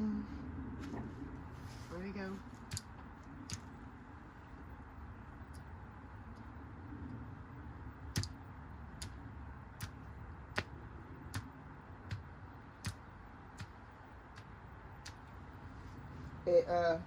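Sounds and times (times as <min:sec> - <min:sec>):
sharp clicks: 0:02.7 - 0:03.8, 0:08.1 - 0:08.4, 0:09.8 - 0:10.7, 0:11.3 - 0:15.3.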